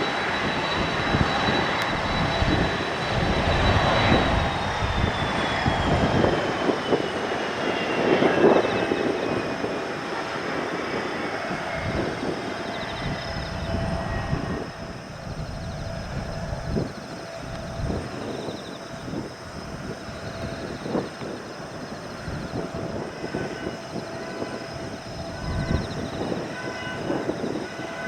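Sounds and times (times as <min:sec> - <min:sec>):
jet engines spooling down: 0:00.0 - 0:28.0
wind rumble on microphone: 0:00.0 - 0:28.0.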